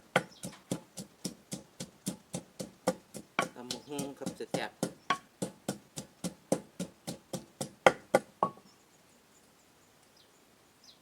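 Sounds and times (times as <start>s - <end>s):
pestle pounding in mortar: 0.0s - 8.6s.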